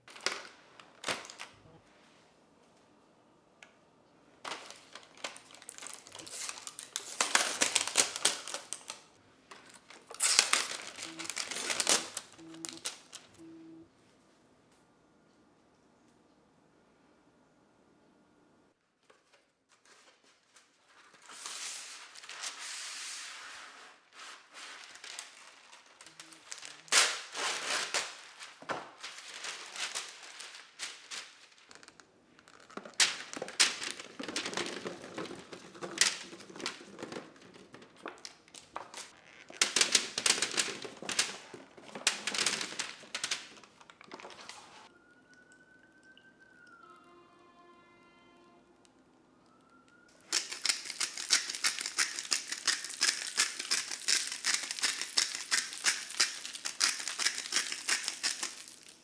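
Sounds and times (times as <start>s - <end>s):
crinkling and rustling: 0.0s - 1.8s, 4.4s - 13.4s, 19.0s - 44.9s, 50.2s - 59.0s.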